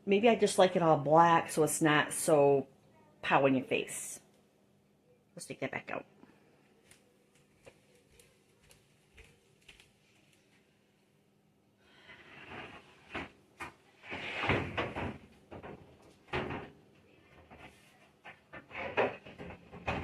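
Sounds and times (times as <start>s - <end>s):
cutting board scraping and knocking: 12.3s - 16.7s.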